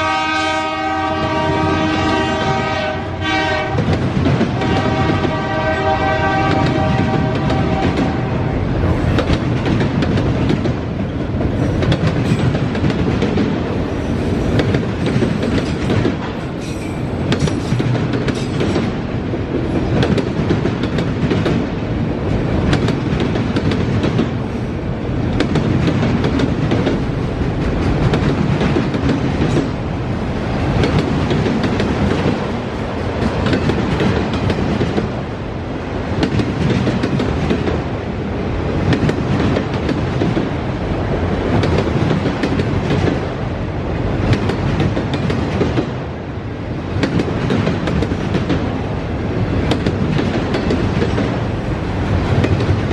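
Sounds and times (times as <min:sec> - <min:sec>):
steel wheels rumbling on rail: 0:00.0 - 0:52.9
wheels clacking over rail joints: 0:06.5 - 0:35.2, 0:47.0 - 0:52.9.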